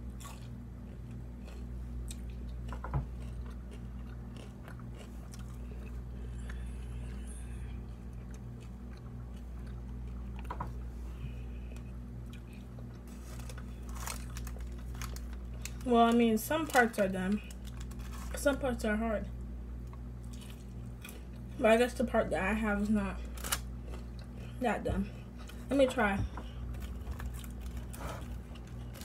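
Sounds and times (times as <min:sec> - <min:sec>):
person chewing sticky food: 0:00.0 - 0:15.9, 0:19.8 - 0:21.6, 0:22.8 - 0:29.0
steady low hum: 0:00.0 - 0:29.0.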